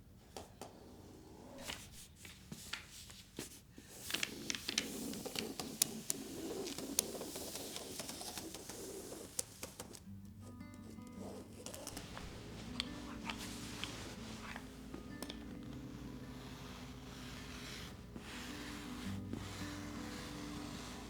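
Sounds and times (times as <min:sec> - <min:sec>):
rustling: 0:01.5 - 0:21.0.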